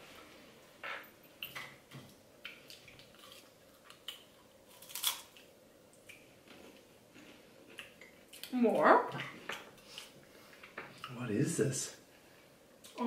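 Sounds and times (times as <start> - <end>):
crunching crisp snack: 3.0 - 5.5.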